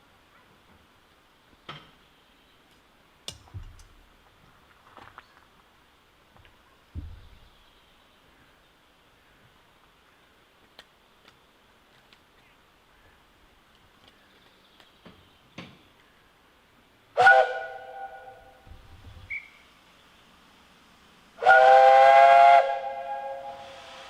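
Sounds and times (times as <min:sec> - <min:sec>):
steam locomotive whistle: 0:17.2 - 0:18.6, 0:21.4 - 0:24.0.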